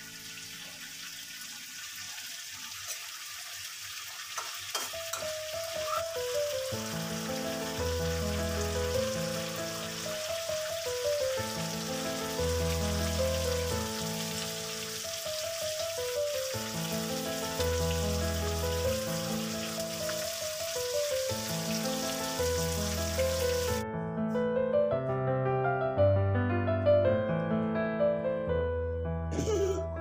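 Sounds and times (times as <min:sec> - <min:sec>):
liver sizzling in a wok: 0:00.0 - 0:23.8
slow keyboard music with bass: 0:21.7 - 0:30.0.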